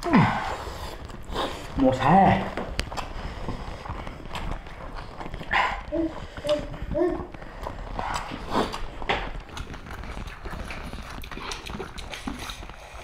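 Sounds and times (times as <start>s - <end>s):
wet chewing and lip smacking: 2.7s - 13.0s
mouth clicks: 5.4s - 13.0s.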